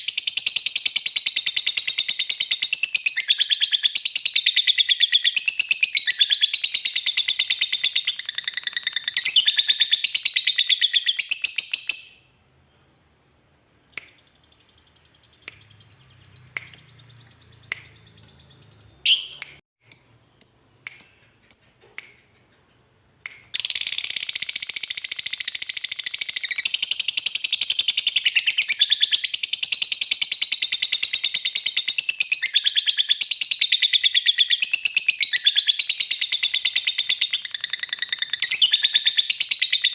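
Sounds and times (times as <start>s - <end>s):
short bird chirps: 0.0s - 22.3s
lovebird chattering song: 0.1s - 21.8s.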